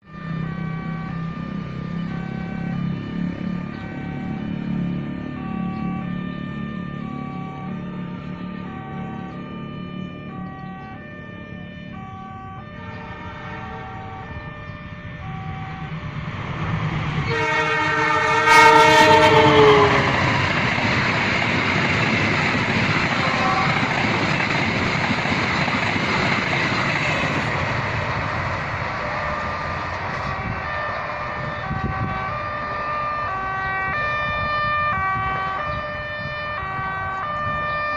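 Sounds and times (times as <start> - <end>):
train rumbling past: 0.0 - 37.9
two-tone warning alarm: 0.0 - 37.9
train horn: 11.8 - 15.9, 17.2 - 21.0, 23.0 - 24.2, 30.2 - 37.9.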